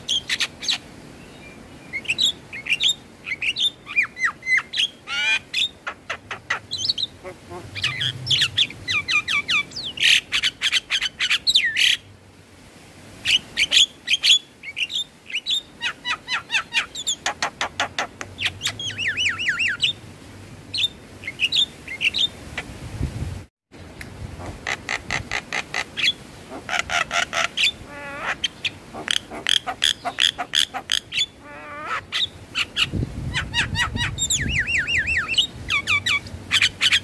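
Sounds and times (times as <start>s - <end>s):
myna singing with clicks and whistles: 18.4s - 20.0s, 31.2s - 37.0s.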